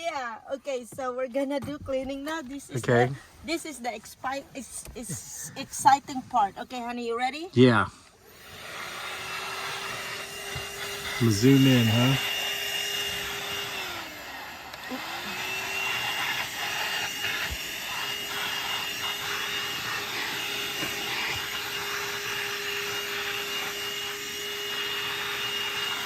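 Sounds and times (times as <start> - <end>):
car vacuum cleaner running: 8.0 - 26.0.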